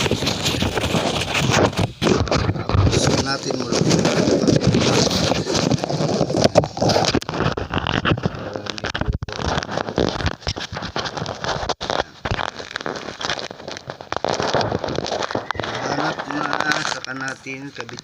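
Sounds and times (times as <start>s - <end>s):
balloon rubbing on microphone: 0.0s - 18.0s.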